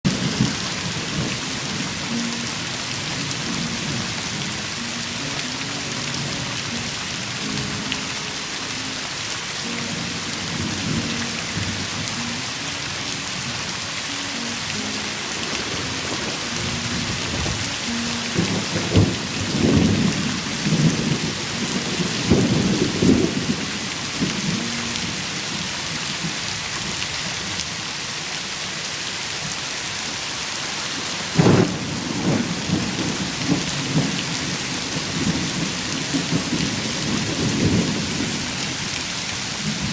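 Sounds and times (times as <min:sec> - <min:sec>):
heavy rain falling: 0:00.0 - 0:39.9
thunder rumbling: 0:15.1 - 0:24.7, 0:31.3 - 0:39.9.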